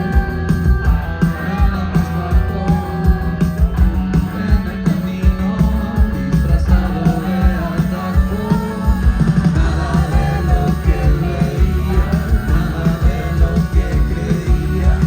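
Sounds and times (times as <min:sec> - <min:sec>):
rock song with singing: 0:00.0 - 0:15.0.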